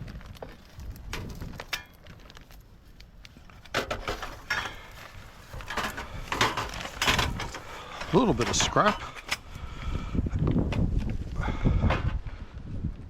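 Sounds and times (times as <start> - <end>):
junk knocking and clinking: 3.7 - 9.5.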